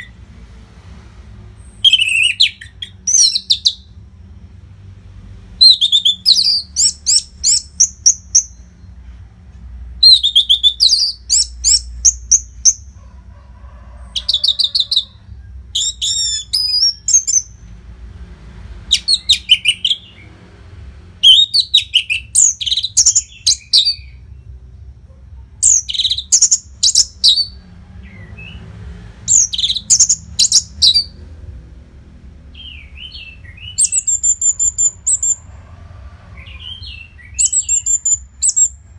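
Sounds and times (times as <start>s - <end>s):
thrush whistled song: 1.6s - 3.9s, 5.6s - 8.7s, 10.0s - 12.8s, 14.2s - 17.5s, 18.9s - 20.3s, 21.2s - 24.2s, 25.6s - 28.6s, 29.3s - 31.2s, 32.6s - 35.4s, 36.4s - 38.8s.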